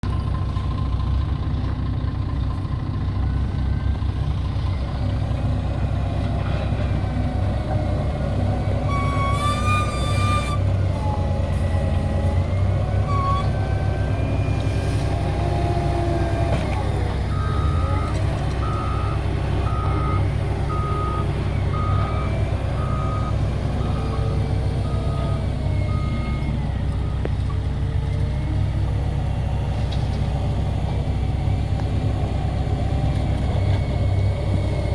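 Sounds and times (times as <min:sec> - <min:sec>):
diesel engine running under load: 0:00.0 - 0:34.9
brief high squeal: 0:08.8 - 0:10.7
reversing alarm beeping: 0:08.8 - 0:11.2, 0:12.6 - 0:14.5, 0:17.3 - 0:27.3.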